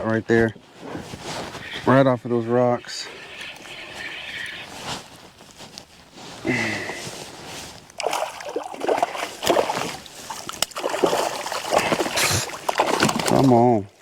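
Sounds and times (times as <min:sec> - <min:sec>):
fish splashing water: 0:07.9 - 0:13.5.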